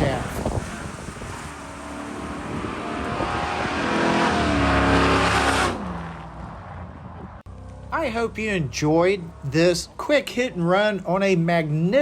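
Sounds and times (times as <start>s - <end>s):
pickup truck accelerating past: 0.4s - 8.0s.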